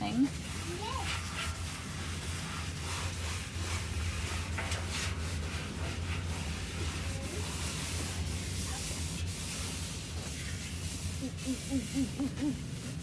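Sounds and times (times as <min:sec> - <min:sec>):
paper towel wiping a drum: 0:00.0 - 0:13.0.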